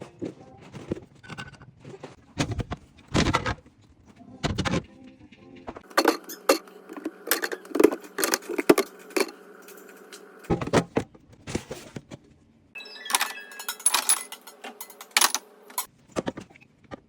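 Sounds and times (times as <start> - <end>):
containers and jars clinking: 5.8 - 10.7, 13.0 - 15.9.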